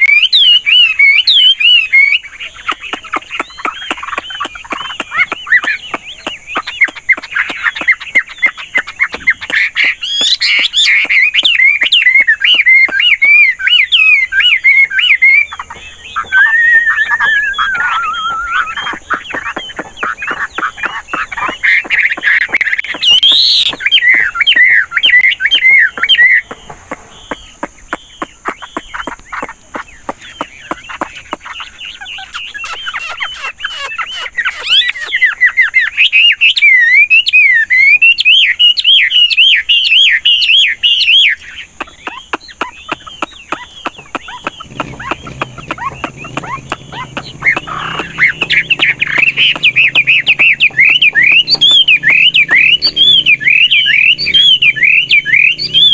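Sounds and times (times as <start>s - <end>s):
bird singing whistles and trills: 0.0s - 55.9s
sharp clicks: 17.0s - 24.7s.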